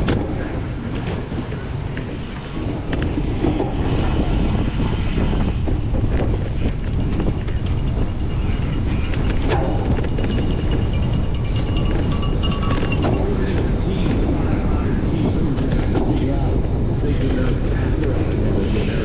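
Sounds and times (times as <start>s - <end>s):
wind rushing over microphone: 0.0s - 19.0s
bicycle clicks and rattles: 6.1s - 13.2s.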